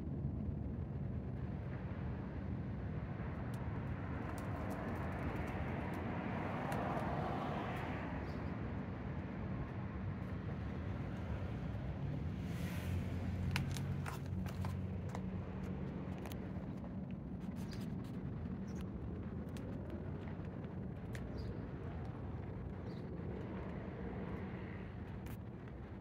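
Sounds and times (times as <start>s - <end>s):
traffic hum: 0.0s - 26.0s
vehicle passing: 9.8s - 16.1s.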